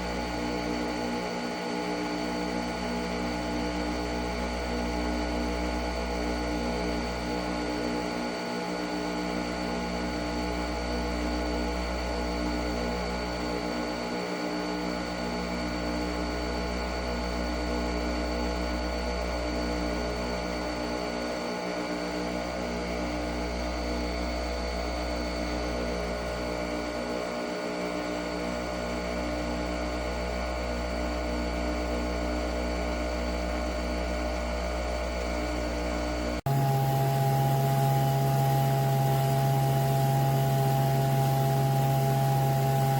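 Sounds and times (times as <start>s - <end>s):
coffee machine motor hum: 0.0s - 42.9s
spinning capsule whine: 34.7s - 42.9s.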